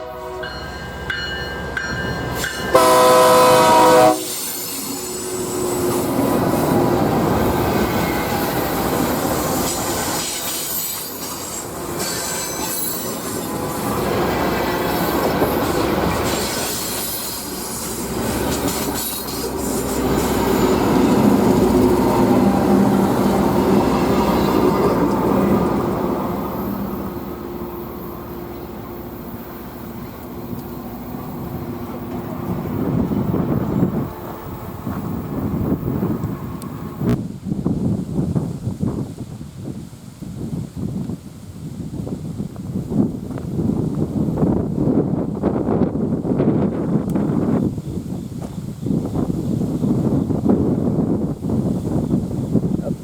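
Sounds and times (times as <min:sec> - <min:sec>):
train horn chord: 0:00.0 - 0:01.5, 0:02.7 - 0:04.4, 0:26.8 - 0:35.2
train rolling on steel rails: 0:00.0 - 0:39.8, 0:41.6 - 0:53.0.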